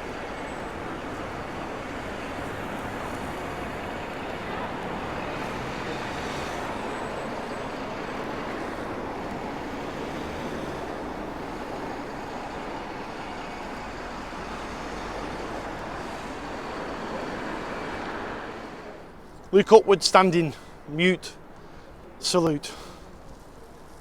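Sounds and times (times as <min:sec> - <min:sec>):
passing road traffic: 0:00.0 - 0:24.0.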